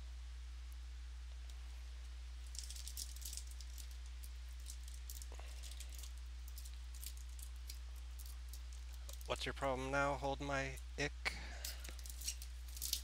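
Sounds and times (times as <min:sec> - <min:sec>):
low hum: 0:00.0 - 0:13.0
cards flicking and rustling: 0:11.7 - 0:13.0.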